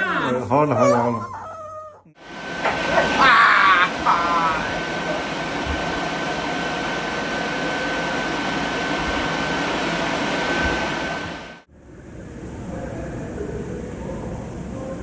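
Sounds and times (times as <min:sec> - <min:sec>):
blowing machine whine: 0:02.2 - 0:14.9.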